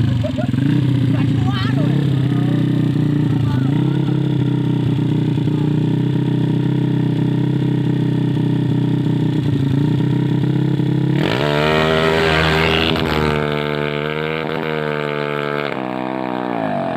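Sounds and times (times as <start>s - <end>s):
motorcycle engine idling and revving: 0.0s - 16.9s.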